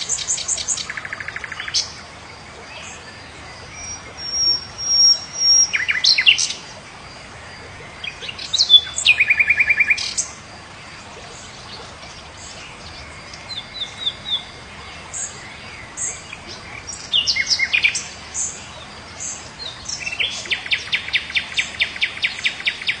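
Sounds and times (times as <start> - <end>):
faint background hiss: 0.0 - 23.0
songbirds chirping and whistling: 0.0 - 23.0
bird trill: 3.7 - 6.6.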